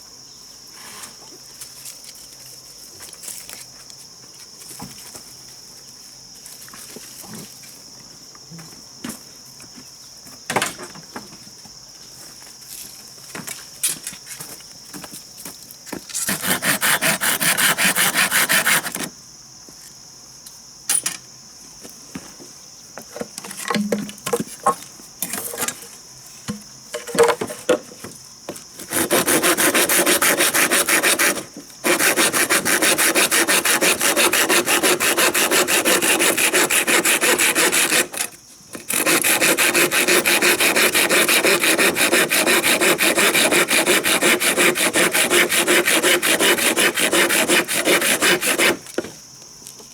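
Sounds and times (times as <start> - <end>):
hand saw cutting wood: 16.2 - 19.1, 28.8 - 48.9.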